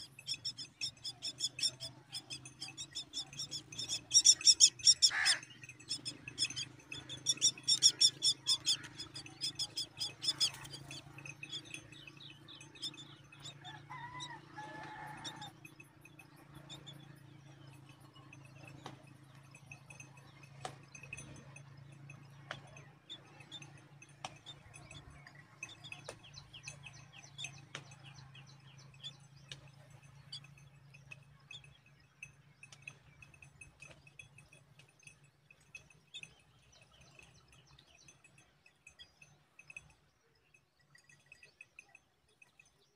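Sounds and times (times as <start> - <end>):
nestlings chirping: 0.0 - 11.1
sharp ticks: 0.1 - 12.0.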